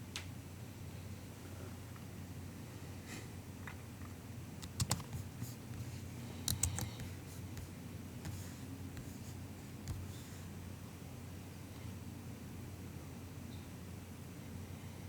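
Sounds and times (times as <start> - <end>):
faint low hum: 0.7 - 15.0
keyboard keystrokes: 4.6 - 5.3, 6.4 - 7.7, 9.9 - 10.2.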